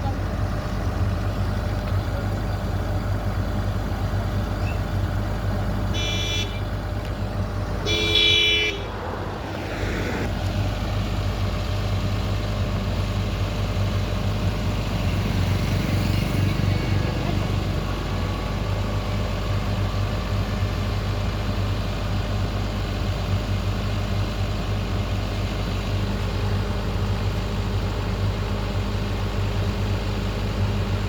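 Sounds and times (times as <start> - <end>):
excavator engine running: 0.0 - 31.0
vehicle horn toots: 5.9 - 6.7, 7.8 - 8.9.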